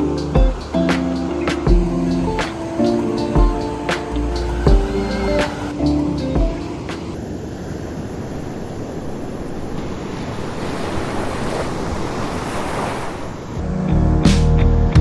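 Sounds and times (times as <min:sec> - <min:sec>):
waves breaking: 0:00.0 - 0:13.6.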